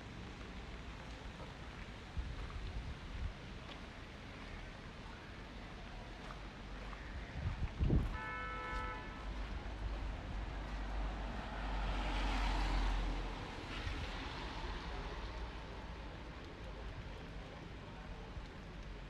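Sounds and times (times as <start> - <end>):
car horn tooting: 8.1 - 9.3
vehicle passing: 10.3 - 15.7.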